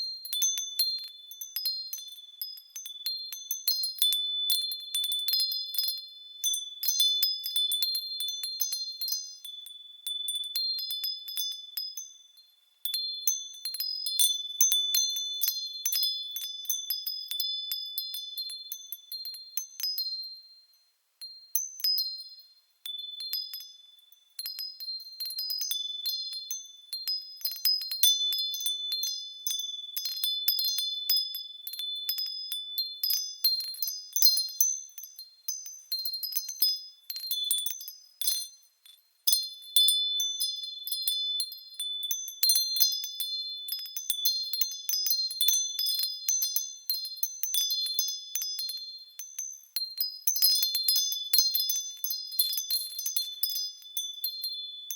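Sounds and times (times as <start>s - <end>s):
wind chimes tinkling: 0.0s - 54.9s.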